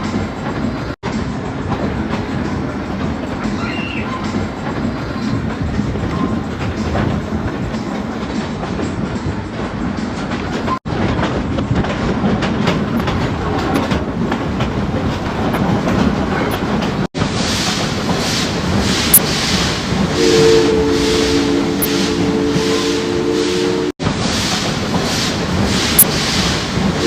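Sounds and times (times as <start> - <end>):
train wheels clacking over rails: 0.0 - 27.0
steam locomotive whistle chord: 20.2 - 24.0.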